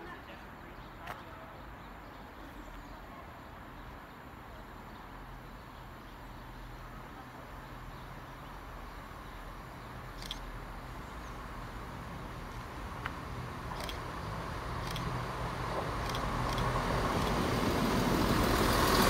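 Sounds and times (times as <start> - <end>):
distant train rumbling: 5.1 - 19.0.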